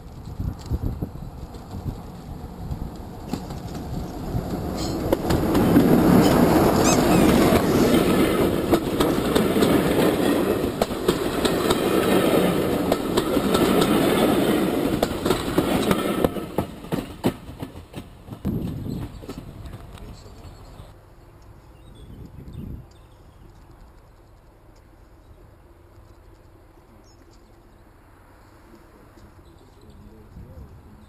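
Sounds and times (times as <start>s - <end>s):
wheels clicking over rail joints: 0.0s - 21.6s
diesel locomotive rumbling past: 0.0s - 21.8s.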